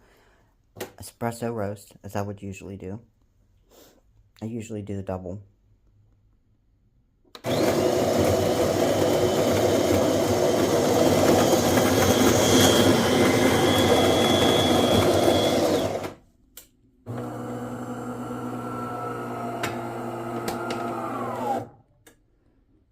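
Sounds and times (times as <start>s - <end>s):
espresso machine hum: 7.4s - 16.1s, 17.1s - 21.6s
coffee grinder running: 7.4s - 16.2s, 17.1s - 21.7s.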